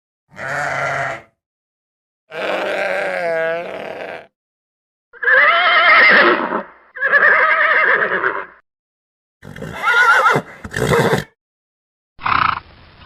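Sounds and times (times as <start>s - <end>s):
horse whinnying: 2.3s - 4.3s, 5.2s - 8.6s, 9.4s - 11.3s.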